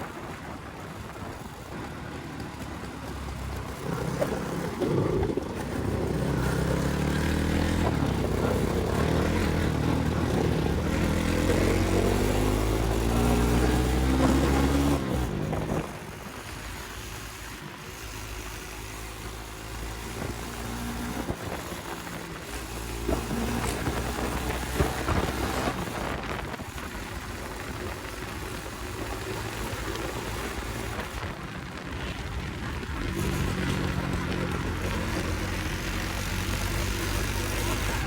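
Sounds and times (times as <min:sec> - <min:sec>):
motorcycle engine running: 0:00.0 - 0:38.0
wind noise on microphone: 0:23.0 - 0:38.0.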